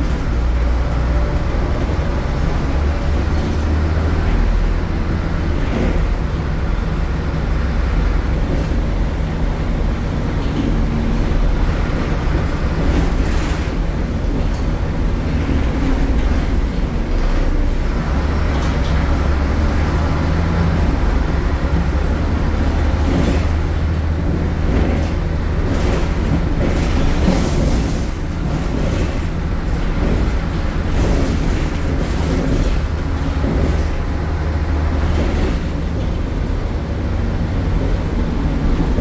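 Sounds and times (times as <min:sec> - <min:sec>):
bus diesel engine droning: 0:00.0 - 0:39.0
knocks and rattles: 0:08.2 - 0:39.0.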